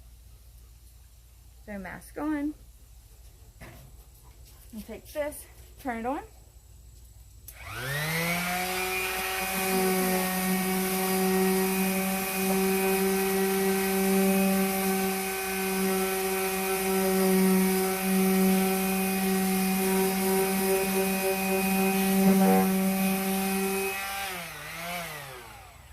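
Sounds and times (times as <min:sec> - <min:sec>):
electric sander motor: 0:07.5 - 0:25.9.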